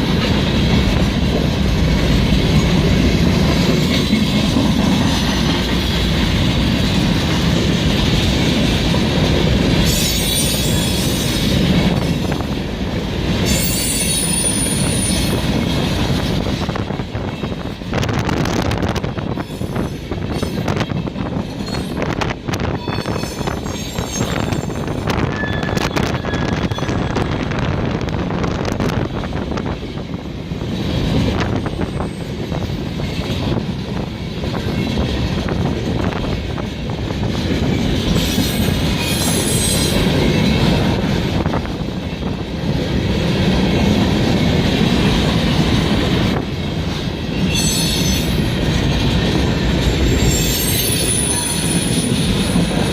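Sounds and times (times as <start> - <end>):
train rumble: 0.0 - 52.9
train wheels squealing: 9.8 - 12.4, 13.4 - 15.6, 19.4 - 20.8, 21.5 - 27.4, 31.5 - 32.4, 38.1 - 40.2, 47.3 - 48.7, 49.8 - 52.9.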